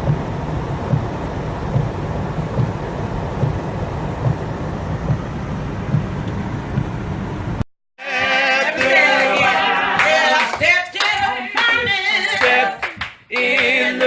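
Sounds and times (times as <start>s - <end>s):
voices singing gospel song: 8.0s - 14.0s.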